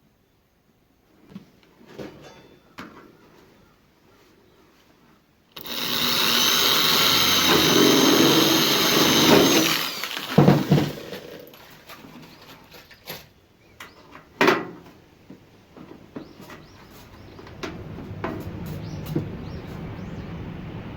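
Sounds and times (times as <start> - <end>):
power tool whining: 5.6 - 11.6.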